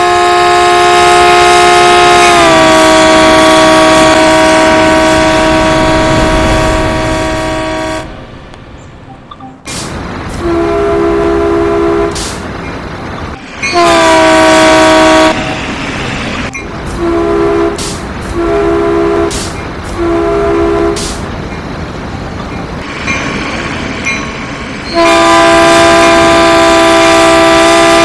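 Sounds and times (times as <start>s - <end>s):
train horn blasts: 0.0s - 8.3s, 10.3s - 12.4s, 13.6s - 21.2s, 24.8s - 28.0s.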